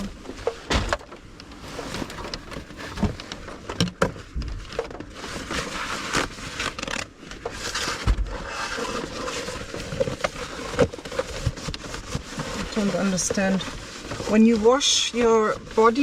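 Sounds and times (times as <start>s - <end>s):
scraping on plastic box: 4.7s - 16.0s.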